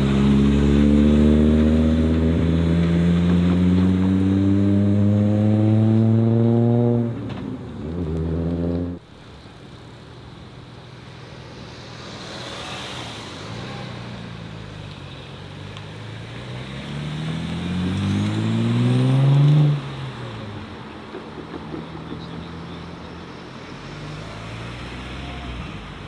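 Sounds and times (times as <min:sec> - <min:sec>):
car engine accelerating: 0:00.0 - 0:09.0, 0:15.7 - 0:20.5.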